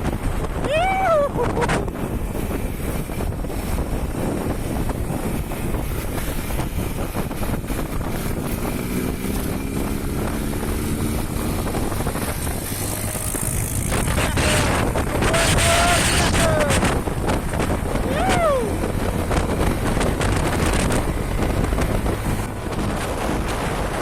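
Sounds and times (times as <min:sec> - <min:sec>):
wind buffeting microphone: 0:00.0 - 0:24.0
small motorcycle engine: 0:02.4 - 0:18.0.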